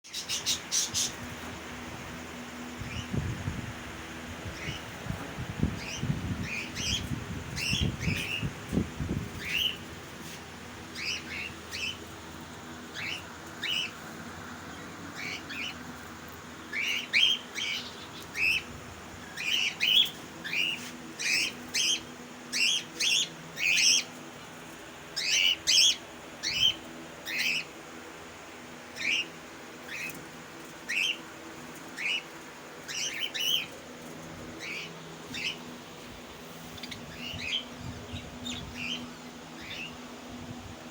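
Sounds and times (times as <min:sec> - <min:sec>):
budgerigars chirping: 0:34.6 - 0:35.6.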